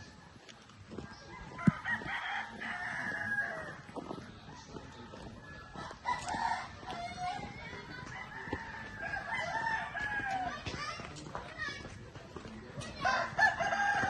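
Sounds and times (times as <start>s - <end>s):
rooster crowing: 1.2s - 3.8s, 8.1s - 10.5s, 13.0s - 14.0s.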